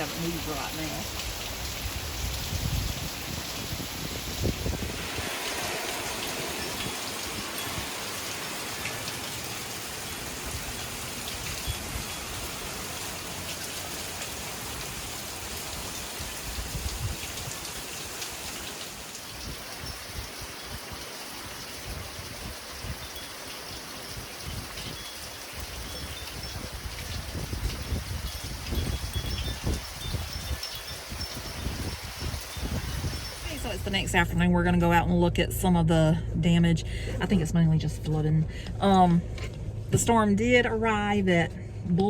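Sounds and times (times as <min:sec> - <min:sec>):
steady rain on surfaces: 0:00.0 - 0:34.2.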